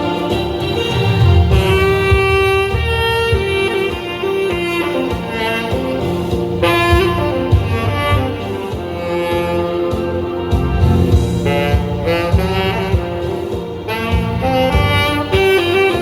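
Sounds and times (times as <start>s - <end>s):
backing track with beat: 0.0s - 16.0s
saxophone melody: 0.0s - 16.0s.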